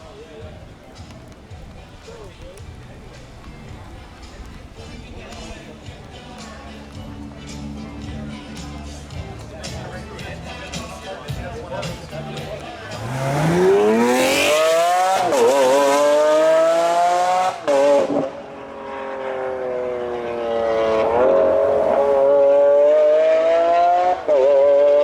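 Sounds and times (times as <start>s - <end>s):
car engine accelerating hard: 11.8s - 25.0s.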